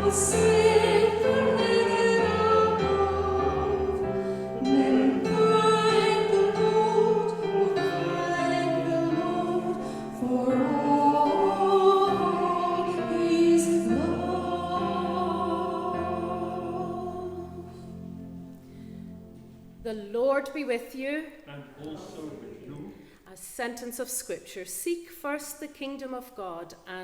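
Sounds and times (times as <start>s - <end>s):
congregation singing a hymn: 0.0s - 18.8s
instrumental accompaniment: 0.0s - 19.9s.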